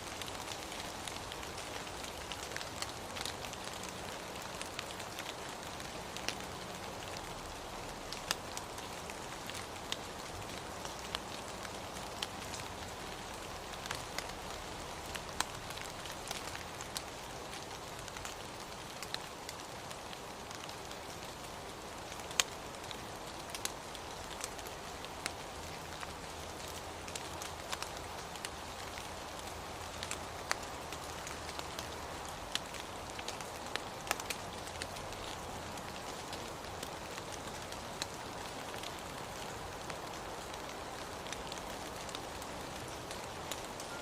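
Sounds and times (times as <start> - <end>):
raindrops ticking on a surface: 0.0 - 44.0
steady rain hiss: 0.0 - 44.0
raindrops tapping: 22.1 - 44.0.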